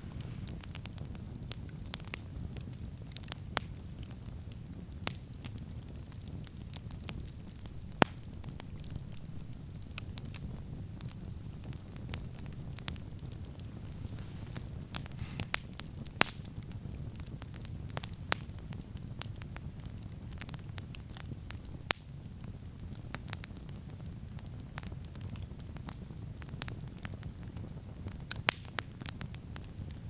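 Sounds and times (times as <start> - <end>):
campfire crackling and popping: 0.0 - 30.0.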